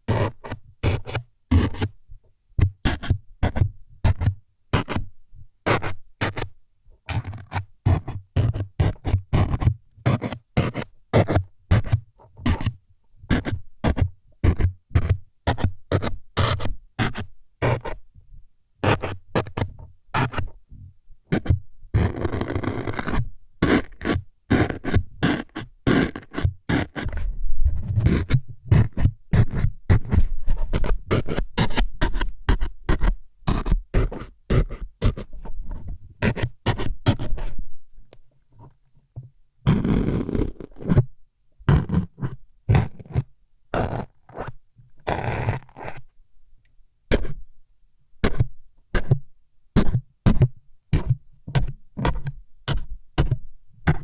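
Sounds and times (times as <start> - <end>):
jabs and scrapes on microphone: 21.3 - 37.6, 39.7 - 41.1, 41.7 - 46.1, 49.8 - 54.0.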